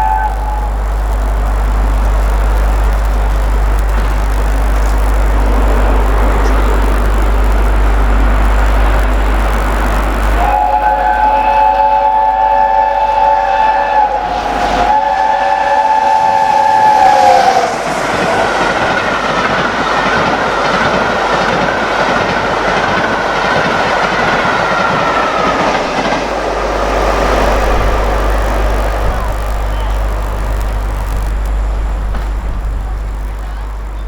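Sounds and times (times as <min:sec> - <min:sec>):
steam locomotive chime whistle: 0:00.0 - 0:01.0, 0:10.3 - 0:21.9, 0:23.1 - 0:30.9
train clattering past at speed: 0:03.9 - 0:30.9.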